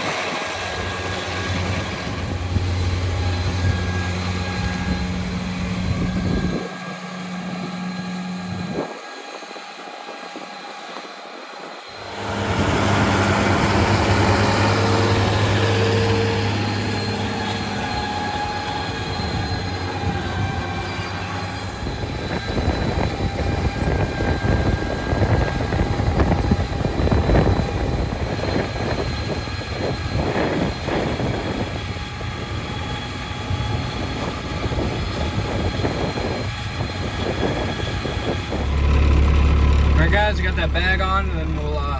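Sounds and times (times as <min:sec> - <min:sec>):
tractor engine running: 0:00.0 - 0:08.8, 0:12.0 - 0:28.8, 0:30.2 - 0:41.9
irregular engine clatter: 0:12.0 - 0:41.9.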